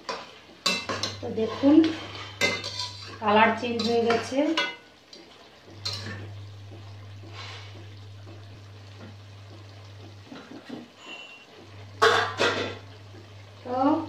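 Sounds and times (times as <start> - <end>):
chicken sizzling in a pan: 0.0 - 14.0
steady low hum: 5.6 - 14.0.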